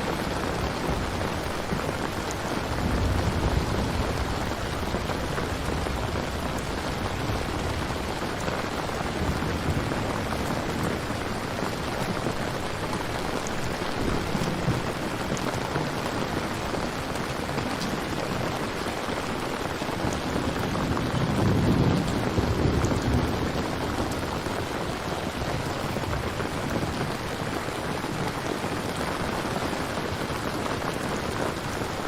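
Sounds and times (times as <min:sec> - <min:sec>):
steady rain: 0:00.0 - 0:32.0.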